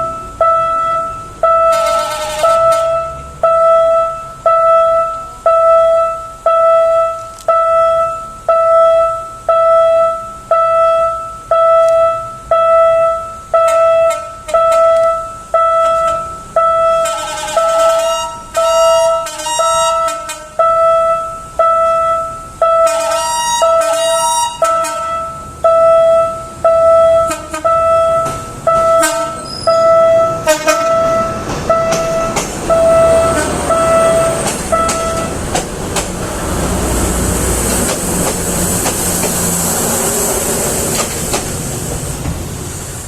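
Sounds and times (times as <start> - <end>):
short horn blasts: 0.4 - 9.1, 9.8 - 35.4.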